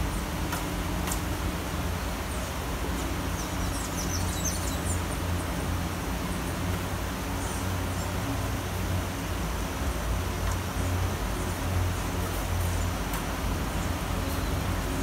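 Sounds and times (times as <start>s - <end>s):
traffic rumble: 0.0s - 15.0s
bird chirping: 3.3s - 5.2s.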